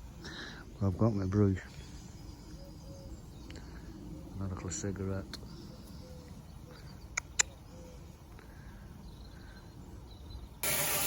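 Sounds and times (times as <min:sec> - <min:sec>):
steady rush of noise: 0:10.6 - 0:11.0.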